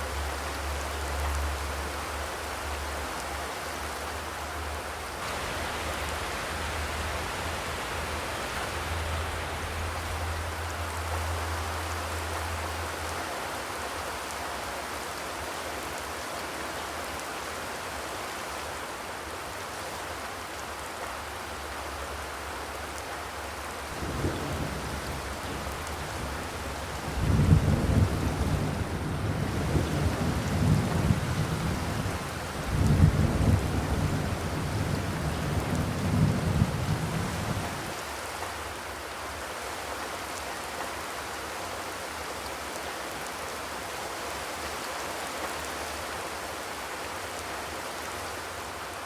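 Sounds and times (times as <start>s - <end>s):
rain drumming on a metal roof: 0.0s - 49.0s
low rumble: 5.3s - 11.6s.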